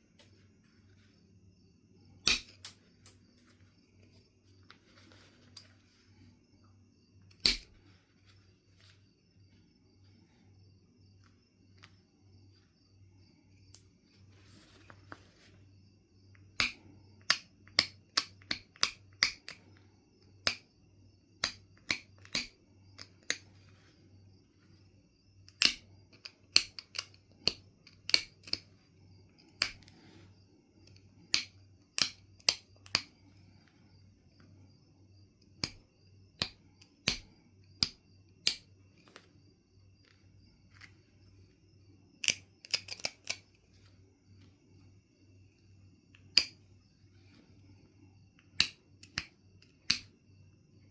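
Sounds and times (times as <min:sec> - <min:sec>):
flint being knapped: 0:02.2 - 0:03.5, 0:07.3 - 0:07.9, 0:16.6 - 0:19.7, 0:20.4 - 0:20.7, 0:21.4 - 0:23.5, 0:25.5 - 0:28.7, 0:29.3 - 0:30.2, 0:30.8 - 0:33.6, 0:35.5 - 0:39.3, 0:42.2 - 0:43.9, 0:46.2 - 0:46.6, 0:48.4 - 0:50.1.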